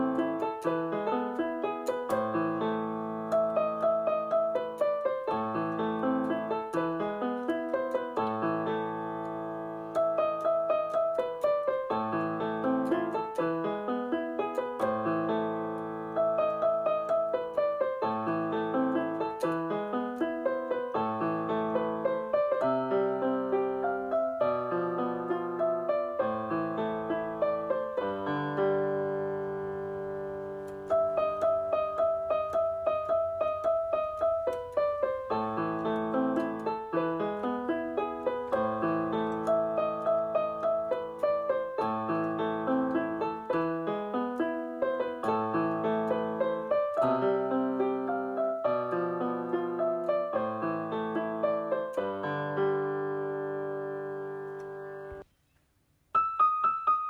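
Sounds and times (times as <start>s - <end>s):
piano repeated notes: 0.0s - 55.3s, 56.2s - 57.0s.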